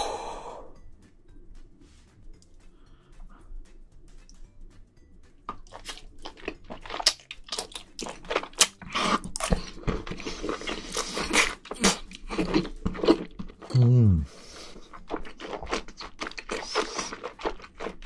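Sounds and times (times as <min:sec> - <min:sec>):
chewing with wet mouth clicks: 0:05.5 - 0:13.7, 0:14.6 - 0:18.0
noodles slurped: 0:05.6 - 0:13.7, 0:14.4 - 0:18.0.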